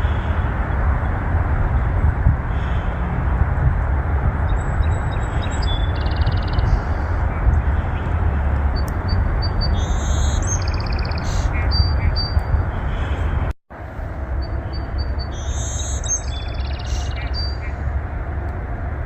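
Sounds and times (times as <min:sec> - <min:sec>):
birds chirping and trilling: 0:01.8 - 0:03.1, 0:04.4 - 0:13.5, 0:14.4 - 0:18.0.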